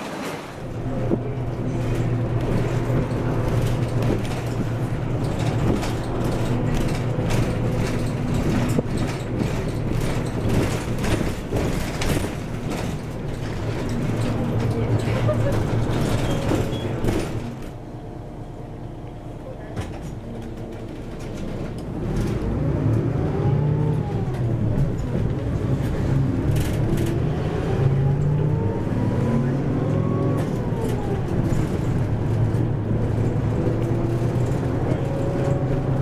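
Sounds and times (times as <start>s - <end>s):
bus engine drone: 0.0s - 36.0s.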